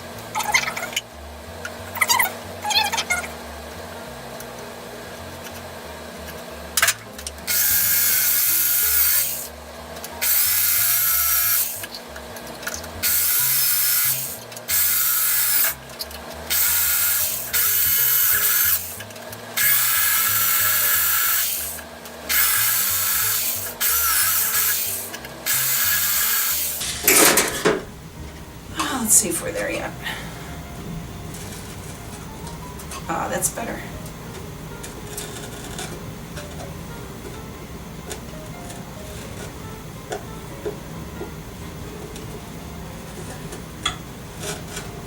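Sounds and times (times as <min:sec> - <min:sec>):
small power drill bursts: 0:07.5 - 0:09.5, 0:10.2 - 0:11.8, 0:13.0 - 0:15.8, 0:16.5 - 0:19.0, 0:19.6 - 0:27.3.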